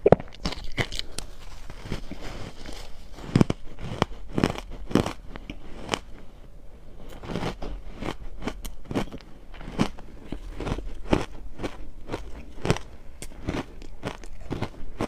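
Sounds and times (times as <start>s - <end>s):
person crunching ice: 0.0s - 6.2s, 7.1s - 15.0s.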